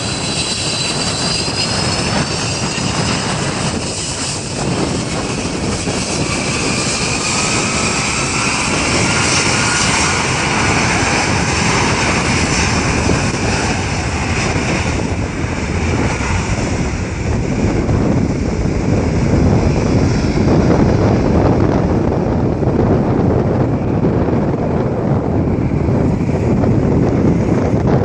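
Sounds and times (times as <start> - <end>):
jet engines passing: 0.0 - 28.0.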